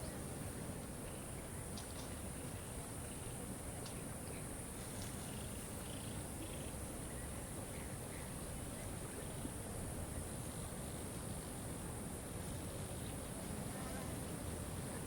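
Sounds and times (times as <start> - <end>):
faint bird chirps: 5.1 - 9.5.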